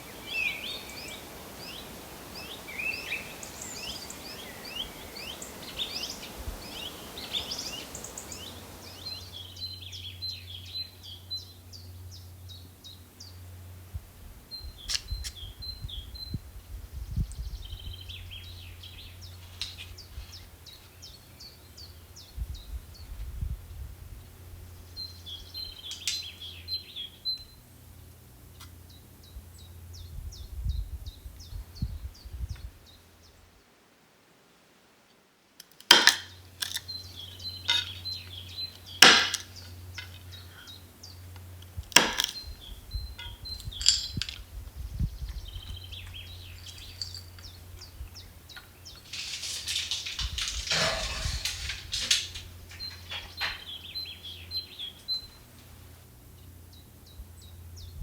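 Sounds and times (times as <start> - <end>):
songbird chirping: 0.0 - 33.8, 35.0 - 58.0
sharp knocks: 39.0 - 39.6.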